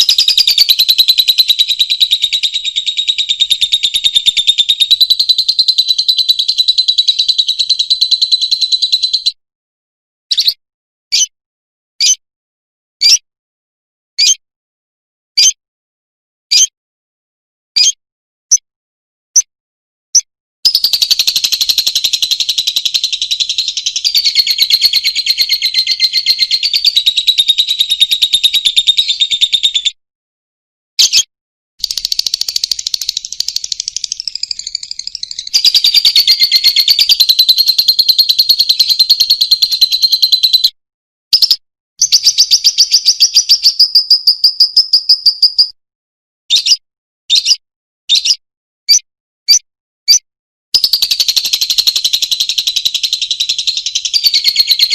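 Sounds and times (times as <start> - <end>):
lovebird chattering trills: 20.7 - 29.8, 31.8 - 40.7.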